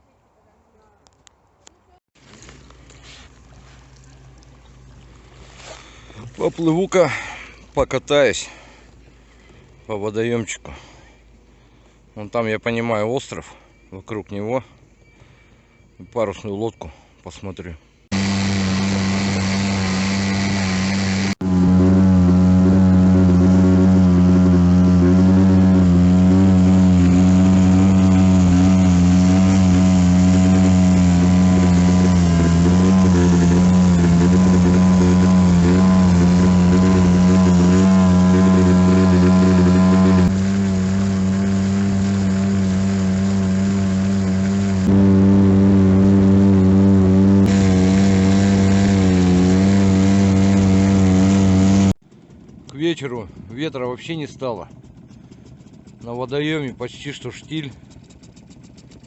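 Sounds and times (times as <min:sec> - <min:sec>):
outboard motor running: 0:02.2 - 0:07.8, 0:18.1 - 0:59.0.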